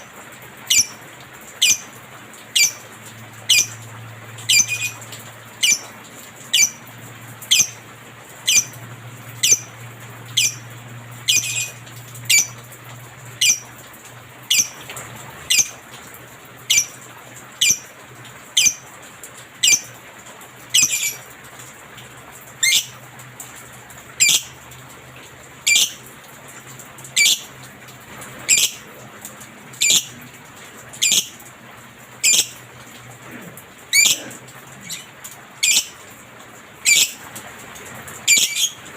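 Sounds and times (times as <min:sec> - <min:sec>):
lovebird shrill squawking: 0:04.5 - 0:05.0, 0:34.0 - 0:34.2, 0:38.3 - 0:38.8.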